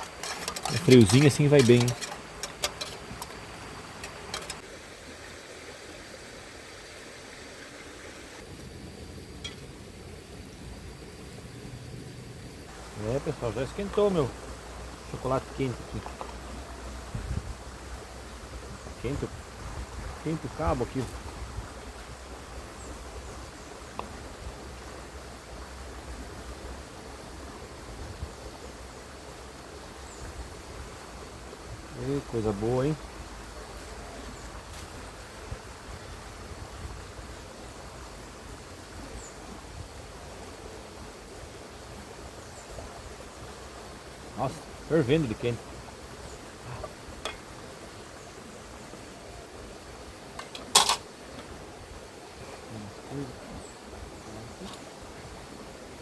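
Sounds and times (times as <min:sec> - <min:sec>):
fire crackles: 0:00.0 - 0:05.0
campfire hissing: 0:00.0 - 0:56.0.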